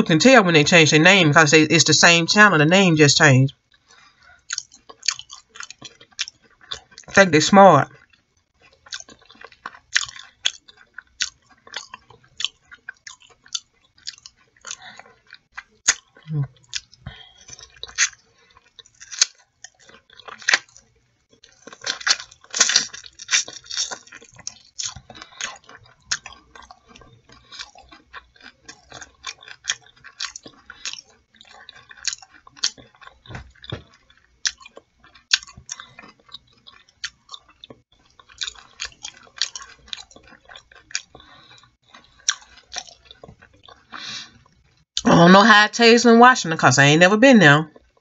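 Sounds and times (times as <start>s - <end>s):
person chewing with wet mouth clicks: 3.7s - 7.2s, 7.9s - 44.6s.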